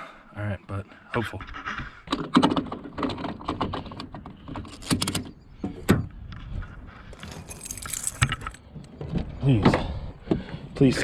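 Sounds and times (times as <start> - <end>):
keys jangling: 7.2 - 8.6.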